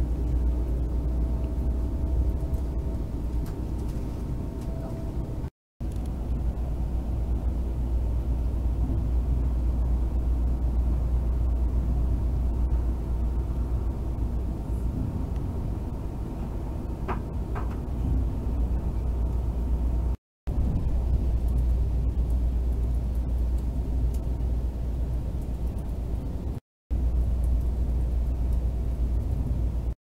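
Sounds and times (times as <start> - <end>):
train wheels rumbling on track: 0.0 - 29.9.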